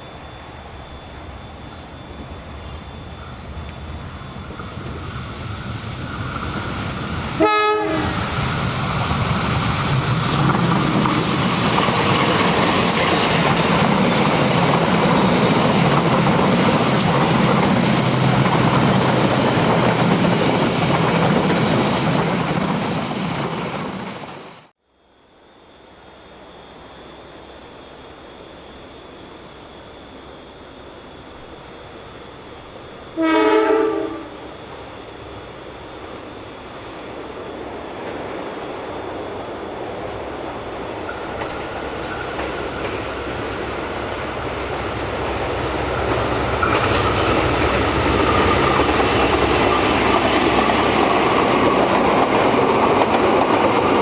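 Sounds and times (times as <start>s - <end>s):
train wheels on rails: 0.0s - 24.7s, 25.9s - 54.0s
locomotive horn blast: 7.3s - 8.3s, 33.2s - 34.5s.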